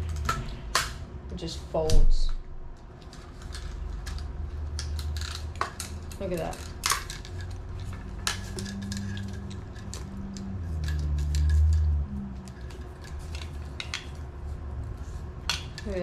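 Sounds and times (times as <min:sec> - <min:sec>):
low hum: 0:00.0 - 0:16.0
gadget clicks and clinks: 0:03.0 - 0:14.2.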